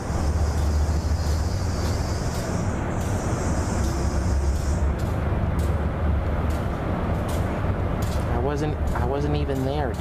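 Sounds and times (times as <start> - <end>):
high hiss: 0.0 - 4.9.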